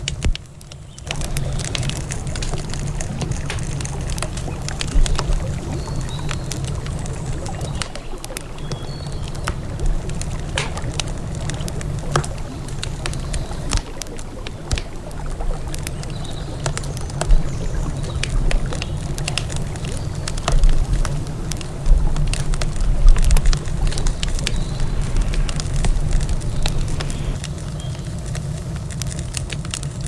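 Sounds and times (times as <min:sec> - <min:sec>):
campfire crackling and popping: 0:00.0 - 0:30.0
river water flowing: 0:01.1 - 0:27.8
faint bird chirps: 0:01.1 - 0:28.0.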